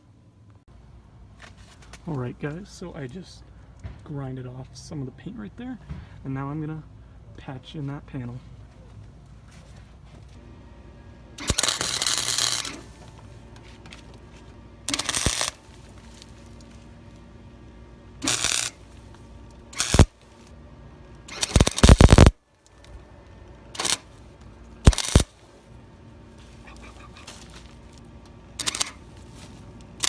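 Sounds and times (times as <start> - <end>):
welder arc bursts: 11.4 - 13.0, 14.9 - 15.8, 18.2 - 19.0, 19.6 - 20.4, 21.2 - 22.4, 23.7 - 24.1, 24.8 - 25.4, 28.6 - 29.0.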